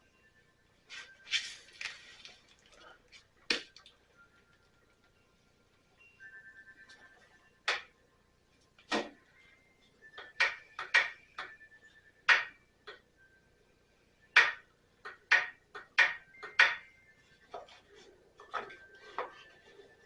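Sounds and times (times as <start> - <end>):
tools and parts clicking and knocking: 10.2 - 11.6, 18.4 - 19.5.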